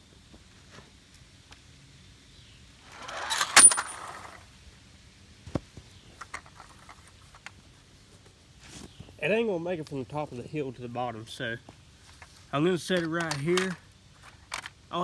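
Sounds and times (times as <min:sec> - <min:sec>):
handling scraping: 0:02.9 - 0:04.4, 0:11.8 - 0:14.8.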